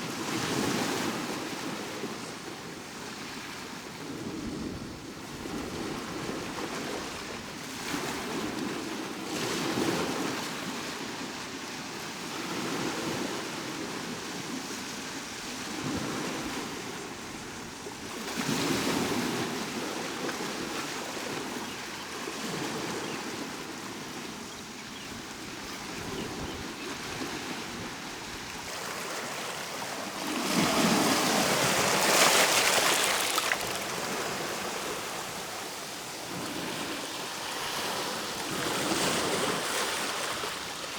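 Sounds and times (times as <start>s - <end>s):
sea waves breaking on shore: 25.0s - 40.9s.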